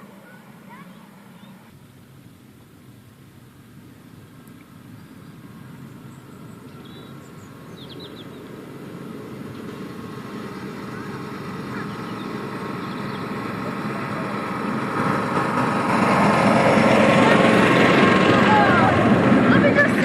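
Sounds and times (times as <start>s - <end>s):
diesel locomotive engine running: 0.0s - 20.0s.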